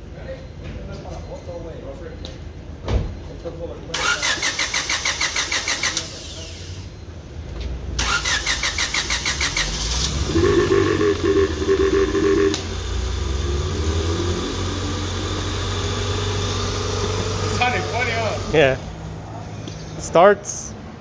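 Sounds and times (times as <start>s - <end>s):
engine starter cranking: 4.0s - 6.1s, 8.0s - 12.7s
car engine idling: 8.0s - 18.9s.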